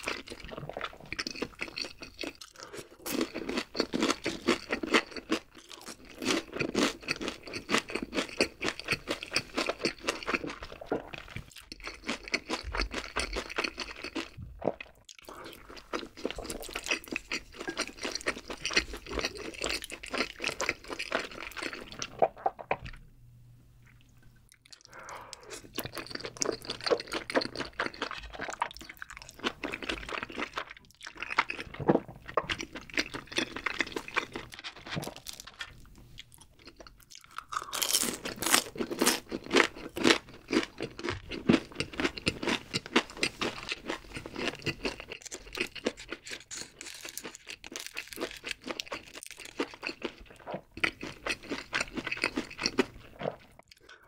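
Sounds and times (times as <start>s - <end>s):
crisp crunching of fried food: 0.0s - 22.2s, 24.5s - 54.0s
wet crunchy chewing: 23.8s - 54.0s.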